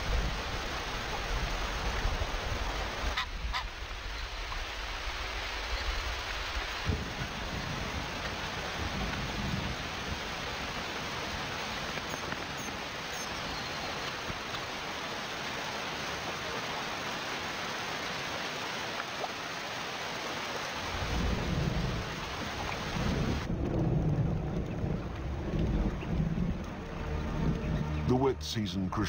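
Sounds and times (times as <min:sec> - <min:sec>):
thunder rumbling: 0:00.0 - 0:12.5, 0:20.9 - 0:28.0
heavy rain on water: 0:00.0 - 0:28.0.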